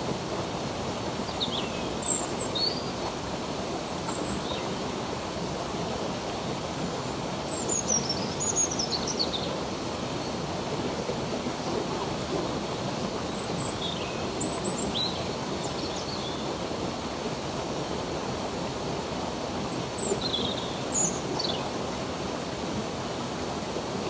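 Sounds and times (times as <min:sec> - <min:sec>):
stream water running: 0:00.0 - 0:24.0.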